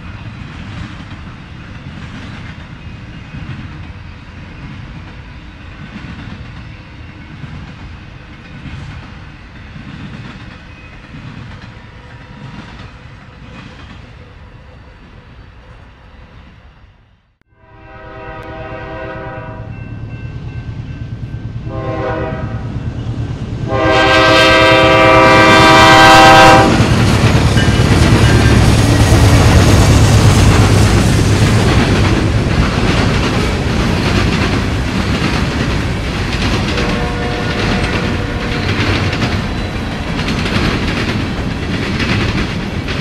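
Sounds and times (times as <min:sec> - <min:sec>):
train wheels clattering on rails: 0:00.0 - 0:14.2, 0:20.5 - 0:43.0
train rumbling: 0:00.0 - 0:43.0
locomotive air horn: 0:17.5 - 0:19.8, 0:21.7 - 0:22.8, 0:23.6 - 0:26.9, 0:36.7 - 0:39.1.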